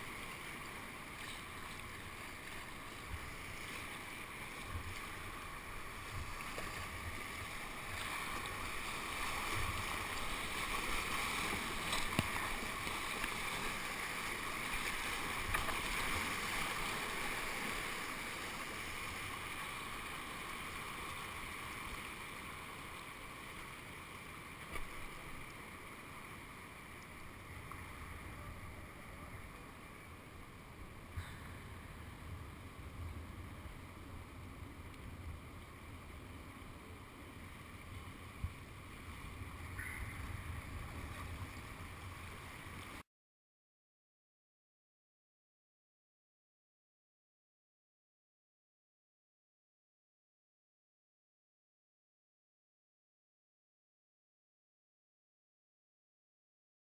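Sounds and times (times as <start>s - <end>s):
rushing whitewater: 0.0s - 43.0s.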